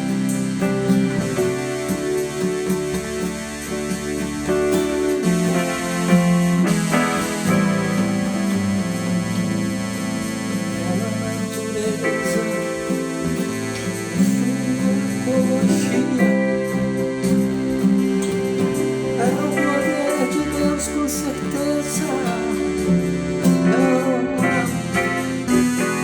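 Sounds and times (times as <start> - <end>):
bass line: 0.0 - 26.0
guitar melody with bending notes: 0.0 - 26.0.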